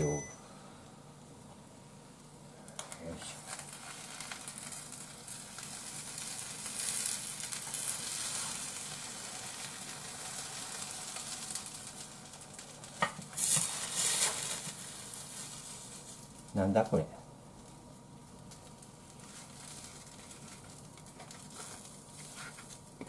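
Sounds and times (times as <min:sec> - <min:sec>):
pancake sizzling in a frying pan: 0:01.9 - 0:16.8, 0:17.4 - 0:23.0
spatula scraping a pan: 0:13.4 - 0:14.6.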